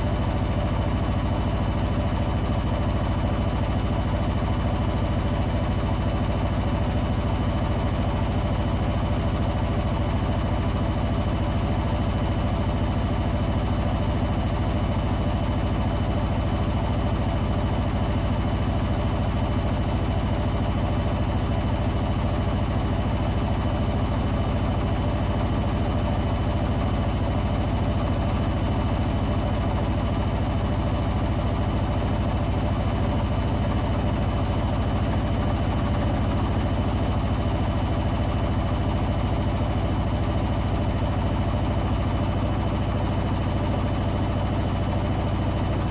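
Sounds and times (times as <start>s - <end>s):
washing machine spinning: 0.0s - 45.9s.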